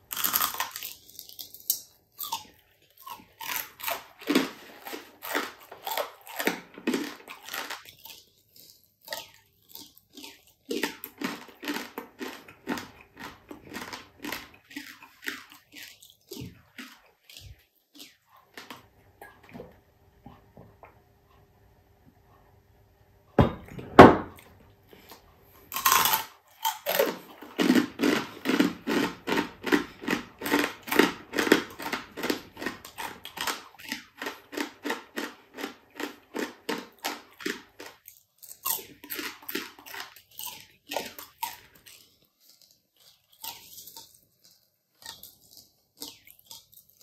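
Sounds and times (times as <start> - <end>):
crunchy chewing: 0.0 - 19.5, 24.9 - 47.0
loud knock: 23.4 - 24.4.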